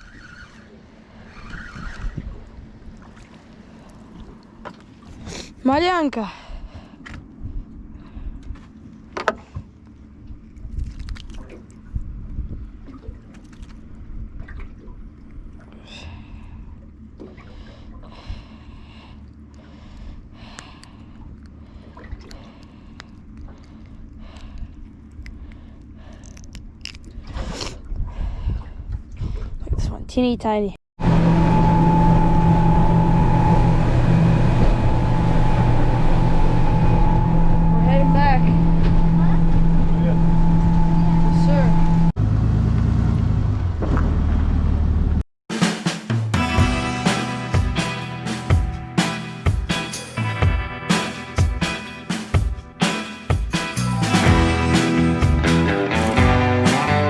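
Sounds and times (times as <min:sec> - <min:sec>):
water moving around boat: 0:00.0 - 0:30.3, 0:31.0 - 0:42.2
wind rumbling on microphone: 0:01.1 - 0:03.2, 0:06.5 - 0:09.0, 0:09.6 - 0:16.7, 0:27.0 - 0:42.1
high whine: 0:31.0 - 0:42.2
boat motor running: 0:31.0 - 0:45.2.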